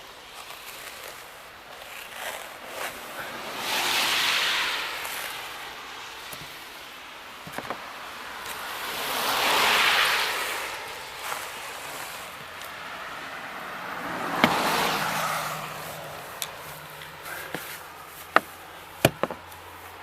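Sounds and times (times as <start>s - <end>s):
vehicles passing with tyre hiss: 0.0s - 20.0s
faint small knocks: 18.3s - 19.5s.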